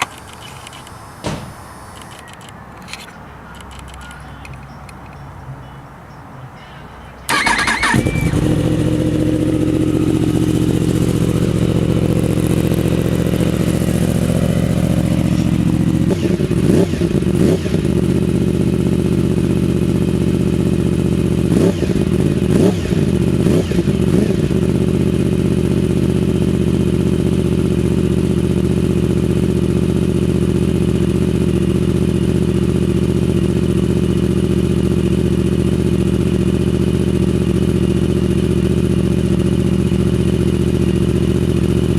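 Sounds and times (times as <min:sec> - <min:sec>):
motorcycle engine revving: 0:07.3 - 0:41.9
motorcycle engine starting and idling: 0:07.3 - 0:41.9.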